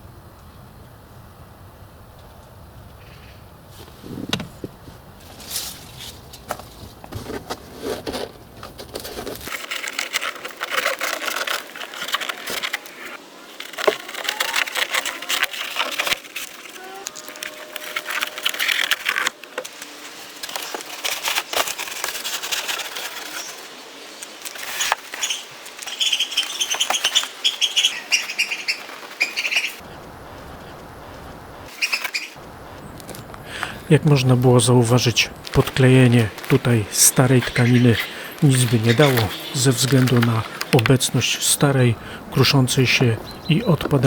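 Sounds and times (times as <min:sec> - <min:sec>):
fabric and foam scraping: 0:03.7 - 0:19.4.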